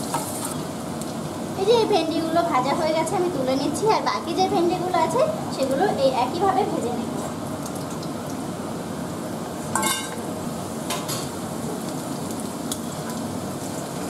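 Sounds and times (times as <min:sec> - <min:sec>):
okra sizzling in hot oil: 0:00.0 - 0:14.0
metal utensil clinking on pan: 0:09.8 - 0:10.2.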